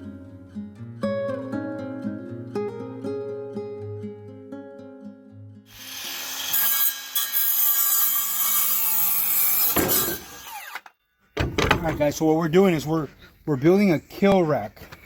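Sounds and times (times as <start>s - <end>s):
plucked guitar music: 0.0s - 5.7s
saw cutting wood: 5.7s - 11.0s.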